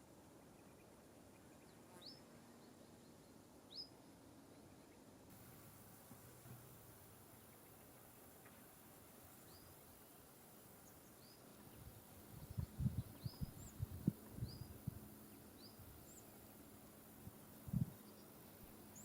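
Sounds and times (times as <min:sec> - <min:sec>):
small bird chirping: 0:10.8 - 0:16.6.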